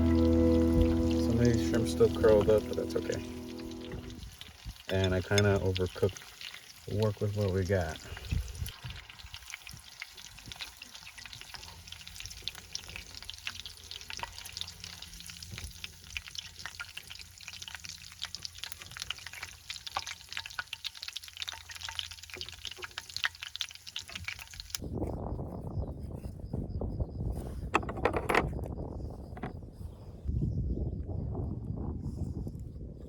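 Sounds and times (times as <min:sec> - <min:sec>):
food sizzling in hot pan: 0:00.0 - 0:24.8.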